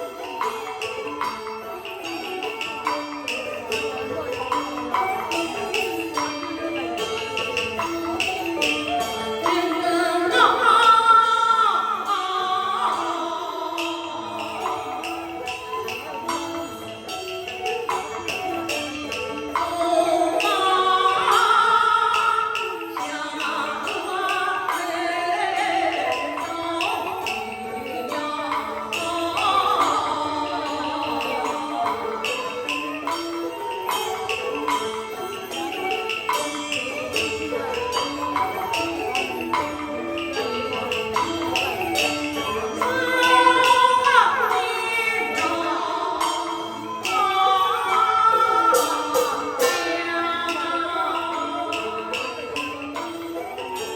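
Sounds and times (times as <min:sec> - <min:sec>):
instrumental accompaniment: 0:00.0 - 0:53.9
percussion strokes: 0:00.0 - 0:53.9.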